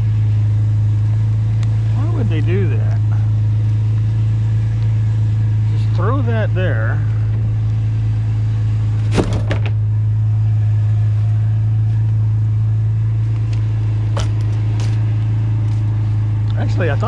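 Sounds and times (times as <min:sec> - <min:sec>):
truck engine idling: 0:00.0 - 0:17.0
metal scrap hitting truck bed: 0:09.0 - 0:09.8.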